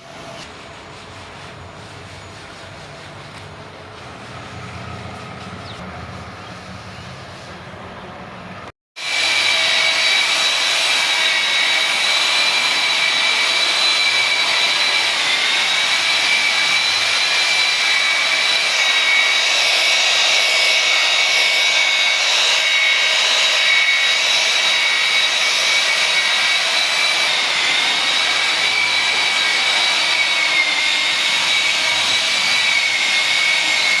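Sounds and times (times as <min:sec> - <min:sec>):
air tool hissing and whining: 0:09.0 - 0:34.0.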